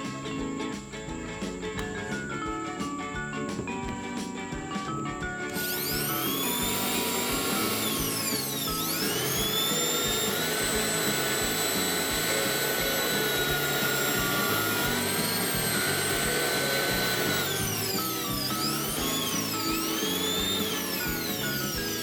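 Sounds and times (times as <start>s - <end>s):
electric blower whining: 4.8s - 22.0s.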